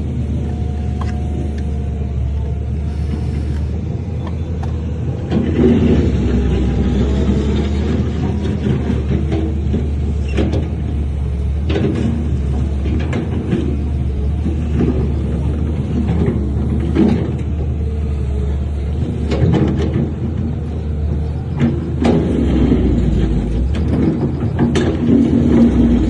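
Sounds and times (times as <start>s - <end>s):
diesel machinery running: 0.0s - 26.0s.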